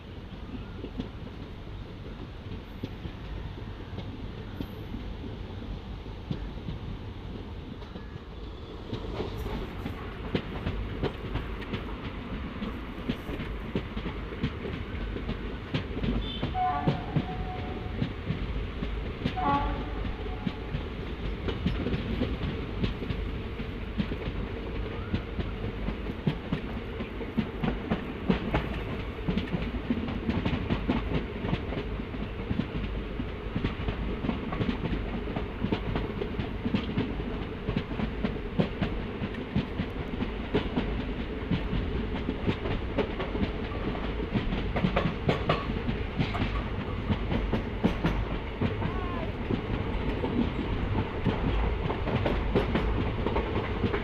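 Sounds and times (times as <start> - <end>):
train coach rumble: 0.0 - 54.0
wheels clattering over rail joints: 35.7 - 54.0.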